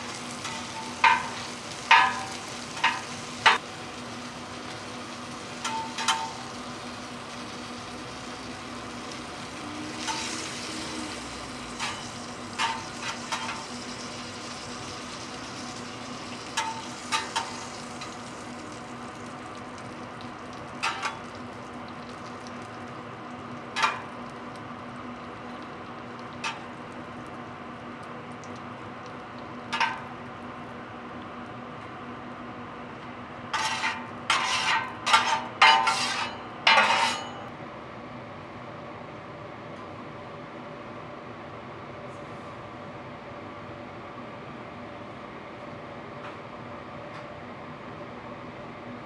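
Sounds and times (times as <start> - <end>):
pancakes sizzling in oil: 0.0 - 30.6, 33.5 - 37.4.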